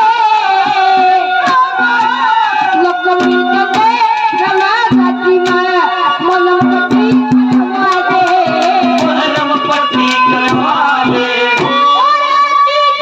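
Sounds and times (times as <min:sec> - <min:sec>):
hand drum beating: 0:00.6 - 0:12.1
harmonium melody: 0:02.8 - 0:13.0.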